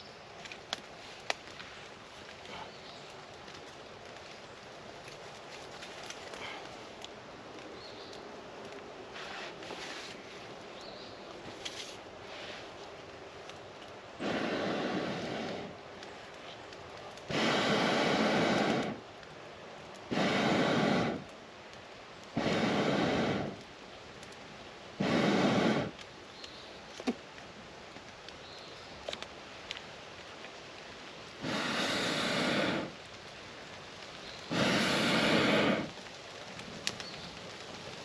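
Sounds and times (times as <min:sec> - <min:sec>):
faint fire crackles: 0:00.0 - 0:38.0
rain hissing: 0:00.8 - 0:38.0
person blowing on campfire: 0:09.1 - 0:10.3, 0:14.2 - 0:15.8, 0:17.2 - 0:19.0, 0:20.1 - 0:21.3, 0:22.3 - 0:23.6, 0:25.0 - 0:26.0, 0:31.4 - 0:33.0, 0:34.5 - 0:36.0.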